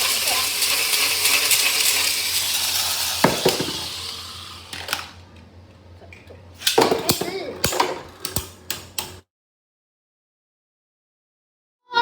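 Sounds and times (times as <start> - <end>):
spinning tops clacking: 0.0 - 5.2
spinning tops whirring and scraping: 0.0 - 5.3.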